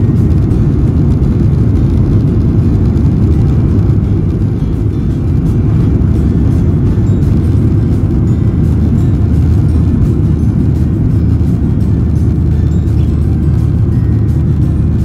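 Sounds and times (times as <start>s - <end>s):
jet engine rumble in cabin: 0.0s - 15.0s.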